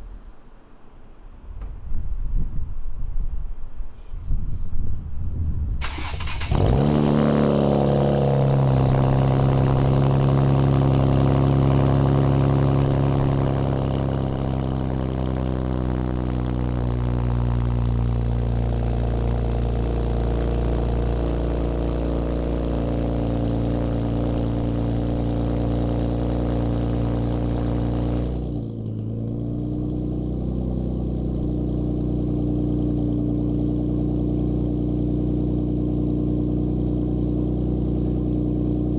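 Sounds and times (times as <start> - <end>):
car engine idling: 5.8 - 28.6.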